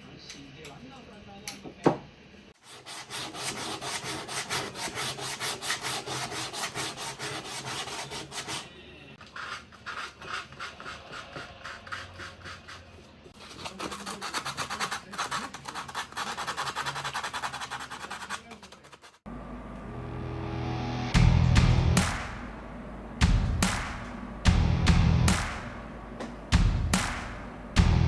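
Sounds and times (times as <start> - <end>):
hand tool rasping on wood: 2.6 - 19.2.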